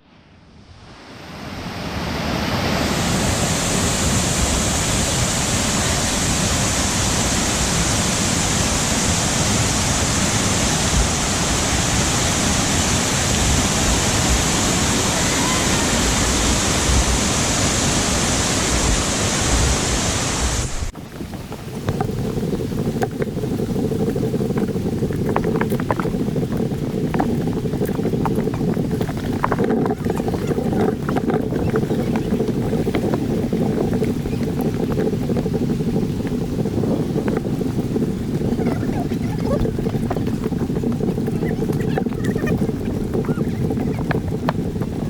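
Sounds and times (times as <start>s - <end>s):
waterfall rushing: 1.1s - 21.6s.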